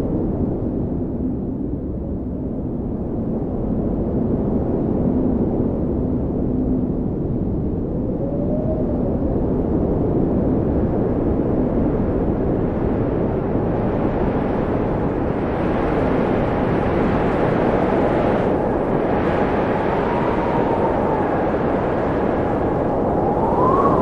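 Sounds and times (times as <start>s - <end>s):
rushing wind: 0.0s - 24.0s
faint wind whistle: 5.0s - 11.7s, 13.8s - 24.0s.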